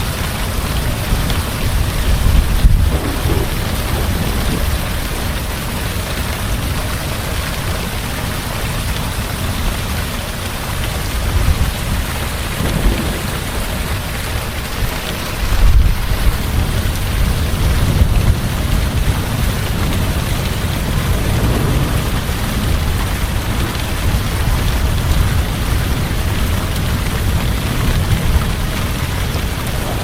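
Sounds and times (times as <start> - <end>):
low rumble of thunder: 2.3 - 5.6, 11.2 - 16.9, 17.5 - 30.0
heavy rain pouring: 2.4 - 6.0, 10.9 - 15.7, 17.5 - 30.0.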